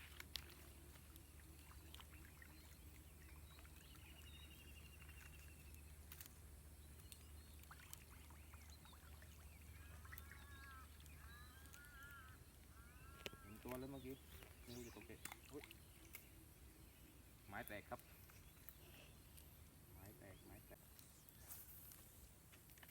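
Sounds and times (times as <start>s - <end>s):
wavering bird chirps: 6.8s - 16.2s
bird trill: 7.0s - 16.1s.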